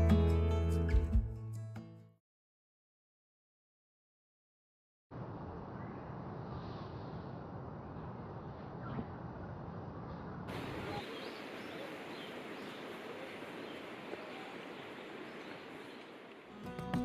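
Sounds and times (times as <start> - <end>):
outdoor background hiss: 5.1 - 17.0.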